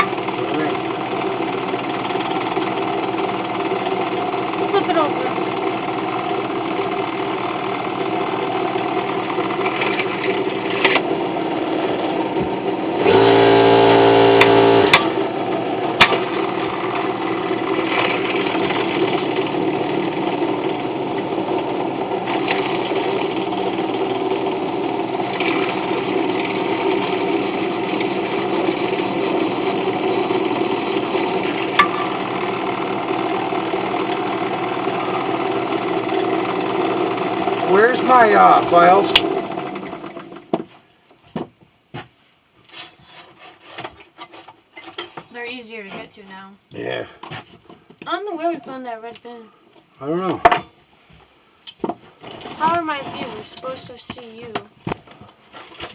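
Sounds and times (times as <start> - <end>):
power tool sanding brass: 13.0 - 15.4, 17.7 - 31.9.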